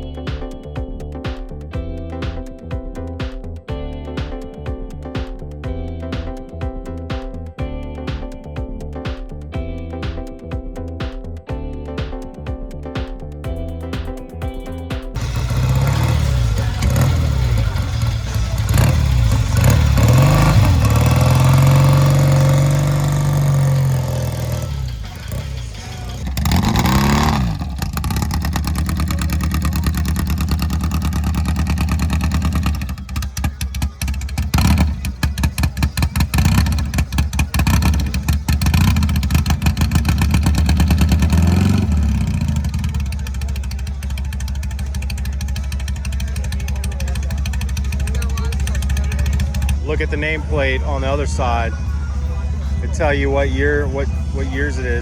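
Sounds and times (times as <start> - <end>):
motorcycle engine revving: 15.1 - 55.0.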